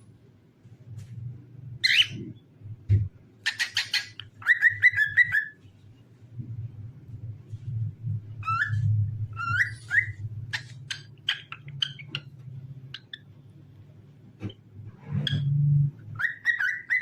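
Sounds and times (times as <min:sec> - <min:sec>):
cockatiel whistling: 0:03.5 - 0:05.6, 0:08.4 - 0:10.7, 0:16.2 - 0:17.0
steady low hum: 0:04.1 - 0:16.2.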